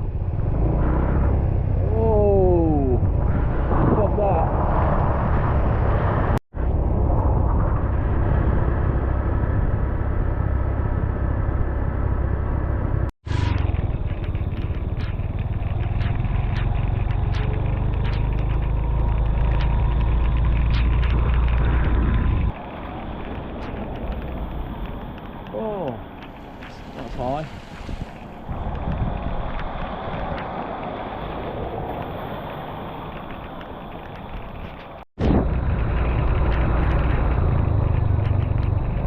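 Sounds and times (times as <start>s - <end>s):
wind buffeting microphone: 1.3s - 39.0s
scooter engine running: 13.6s - 26.5s.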